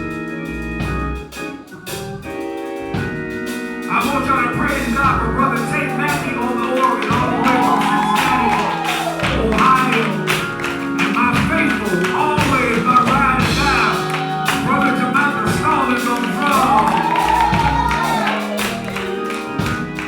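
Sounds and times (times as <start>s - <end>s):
live gospel band music: 0.0s - 20.0s
drums and percussion: 4.7s - 20.0s.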